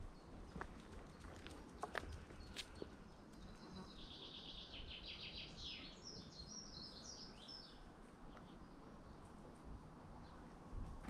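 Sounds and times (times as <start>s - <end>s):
songbird singing faintly: 0.0s - 11.0s.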